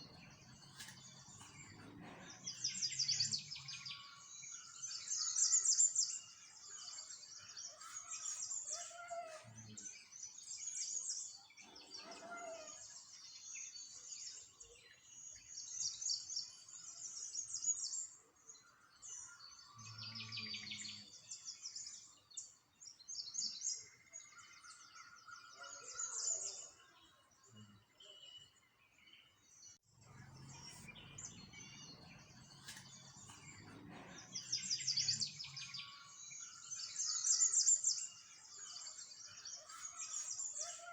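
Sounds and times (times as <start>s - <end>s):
small songbirds chirping: 0.0s - 40.9s.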